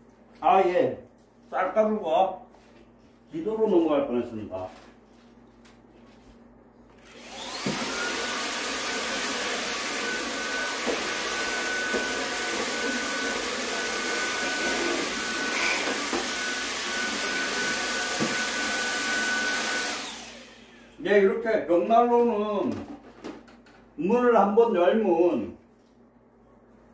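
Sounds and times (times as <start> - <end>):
vacuum cleaner motor whining: 7.0 - 20.9.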